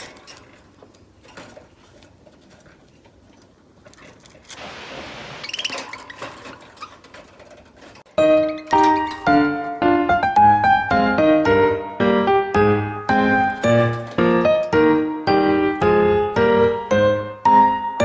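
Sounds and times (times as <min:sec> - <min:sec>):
small clicks and rustles: 0:00.0 - 0:04.6, 0:05.6 - 0:09.4.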